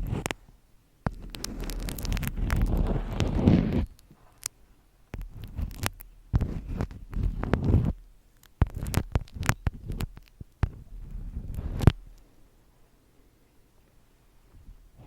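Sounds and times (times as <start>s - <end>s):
rustling: 0.0s - 12.4s
sharp clicks and taps: 1.0s - 12.2s.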